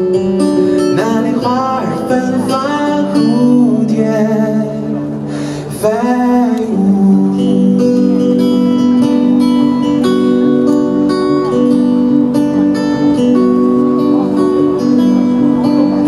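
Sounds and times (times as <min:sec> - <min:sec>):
acoustic guitar: 0:00.0 - 0:16.0
person singing: 0:00.6 - 0:08.8.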